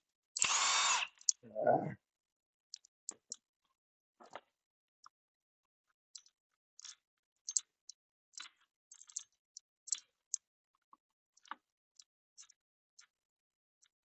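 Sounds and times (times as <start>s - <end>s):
light clicks and taps: 6.2s - 13.2s.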